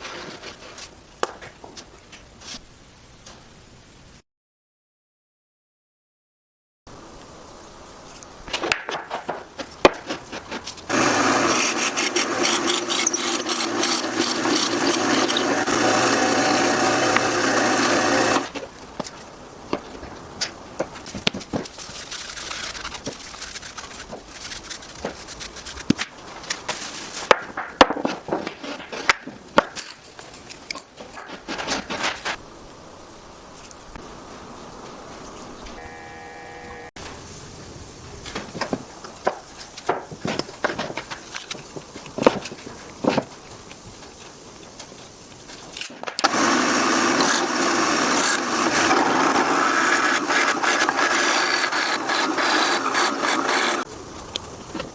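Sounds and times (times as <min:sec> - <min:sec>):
power tool running on wood: 0:10.9 - 0:18.6, 0:46.2 - 0:53.8
wooden pieces knocking and clicking: 0:22.8 - 0:32.4.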